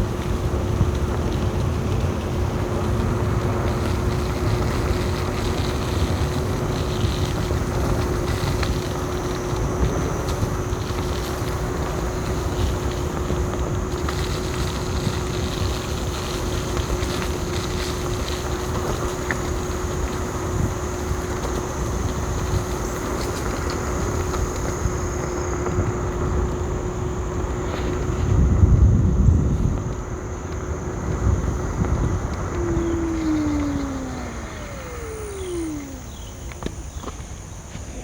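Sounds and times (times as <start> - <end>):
electric motor whine: 2.4 - 38.0
wind buffeting microphone: 30.7 - 37.0.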